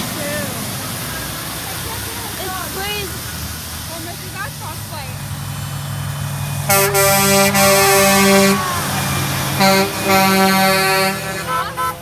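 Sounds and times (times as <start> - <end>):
low engine hum: 0.0 - 12.0
truck air horn blasts: 6.6 - 12.0.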